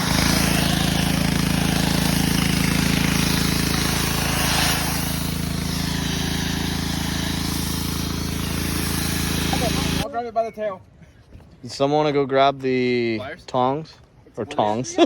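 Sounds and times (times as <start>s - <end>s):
engine droning steadily: 0.0s - 10.0s.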